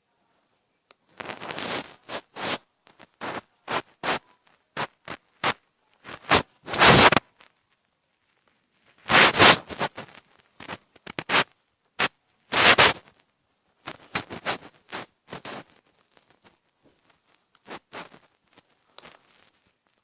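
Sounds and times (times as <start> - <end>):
pencil scratching drawing strokes: 6.2 - 7.2, 9.1 - 10.0.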